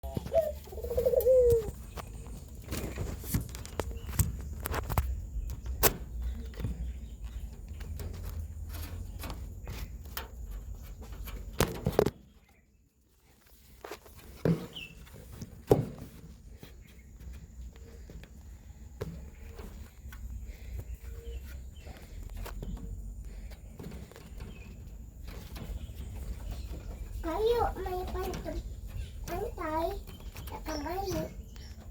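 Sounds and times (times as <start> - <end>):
dove cooing: 0.0 - 1.9
sharp knocks and clicks: 1.9 - 12.5.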